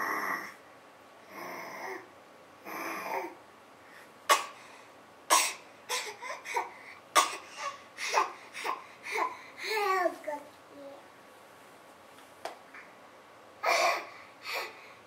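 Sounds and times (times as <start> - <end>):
baby making breathy sounds: 1.3 - 3.4.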